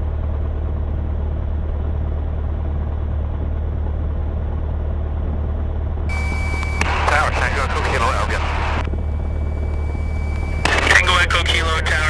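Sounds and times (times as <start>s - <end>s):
propeller plane engine idling: 6.1s - 12.0s.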